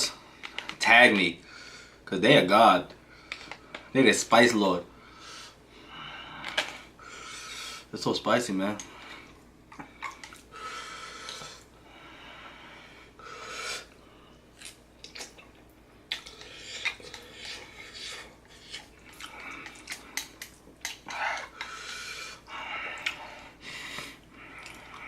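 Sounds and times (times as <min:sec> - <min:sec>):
person breathing hard and hissing: 0:05.0 - 0:07.9, 0:10.5 - 0:14.3, 0:16.3 - 0:20.4, 0:21.0 - 0:25.0
wet mouth clicks and smacks: 0:14.6 - 0:18.0, 0:18.6 - 0:21.6.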